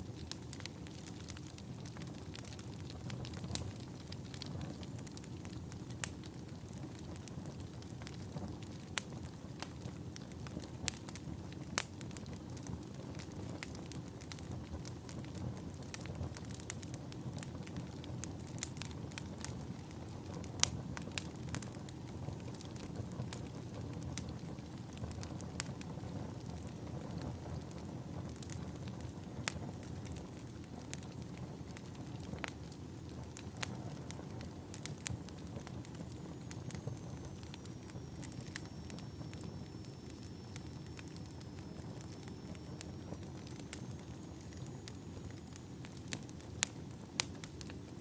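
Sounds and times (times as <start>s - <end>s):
log fire crackling: 0.0s - 48.0s
sharp pops and snaps of fire: 0.0s - 48.0s
faint high whistle: 36.2s - 45.6s.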